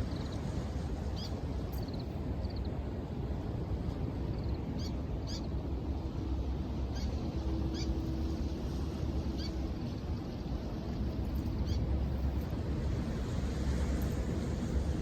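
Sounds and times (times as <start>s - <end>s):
surf rumbling: 0.0s - 15.0s
wind: 0.0s - 15.0s.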